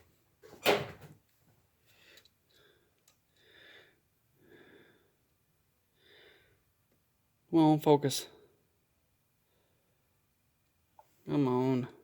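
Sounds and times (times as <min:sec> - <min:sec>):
man breathing: 0:01.8 - 0:06.8.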